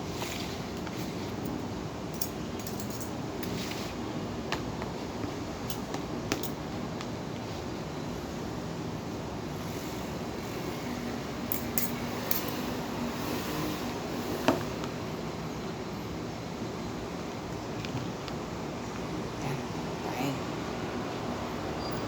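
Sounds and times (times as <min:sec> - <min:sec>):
steady background hum: 0:00.0 - 0:22.0
cutlery clinking against plate: 0:02.2 - 0:03.7, 0:11.5 - 0:12.6.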